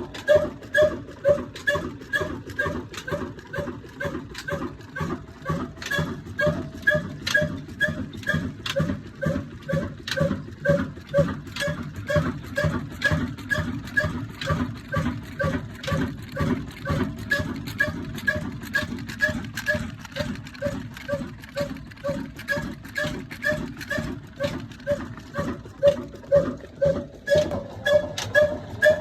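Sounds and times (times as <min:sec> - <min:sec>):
diesel engine chugging: 0:00.0 - 0:29.0.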